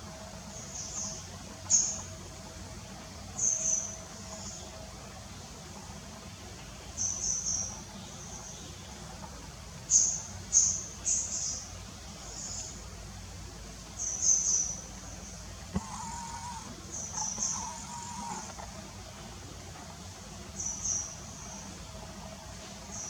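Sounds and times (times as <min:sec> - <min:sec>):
small birds chirping: 0:14.0 - 0:19.0, 0:20.4 - 0:21.8.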